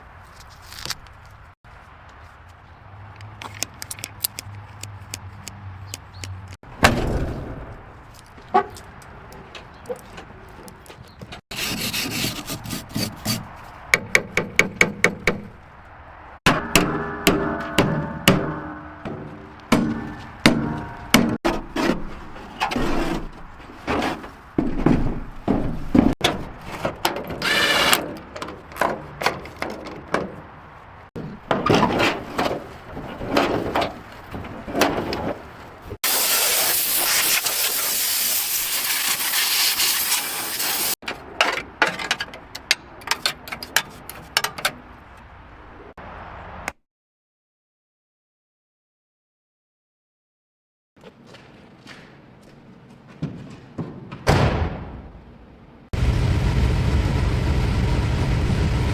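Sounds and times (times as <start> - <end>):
scraping strokes: 11.5 - 13.6.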